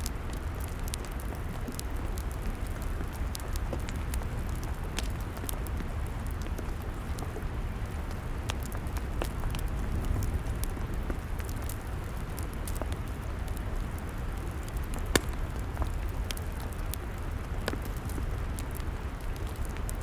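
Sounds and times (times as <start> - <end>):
log fire crackling: 0.0 - 20.0.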